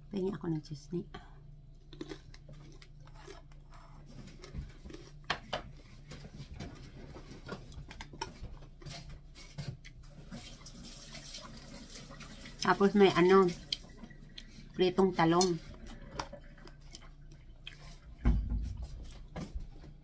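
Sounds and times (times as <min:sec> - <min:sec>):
low steady hum: 0:00.0 - 0:20.0
person chewing crunchy food: 0:01.4 - 0:10.5, 0:15.7 - 0:18.2.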